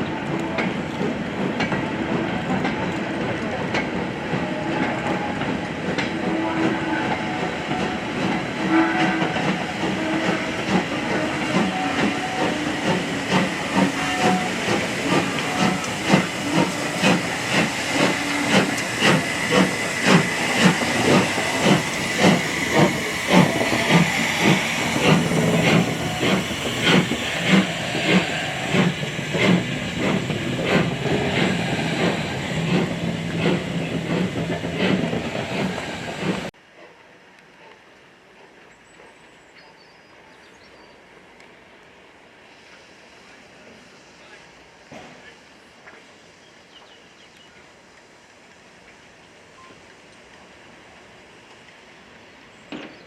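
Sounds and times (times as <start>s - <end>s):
steam locomotive exhaust beats: 0.1s - 36.5s
steam hissing: 3.9s - 36.5s.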